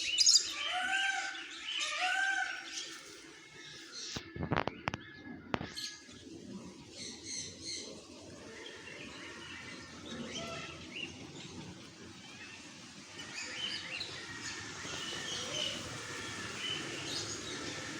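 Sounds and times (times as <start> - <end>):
many birds chirping: 0.0 - 17.9.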